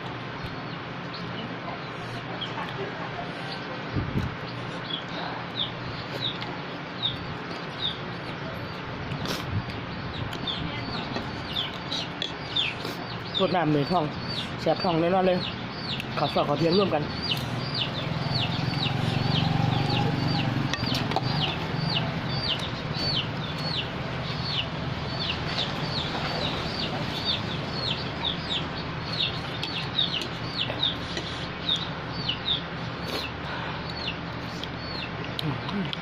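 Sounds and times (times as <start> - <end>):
chicks peeping: 0.1 - 36.0.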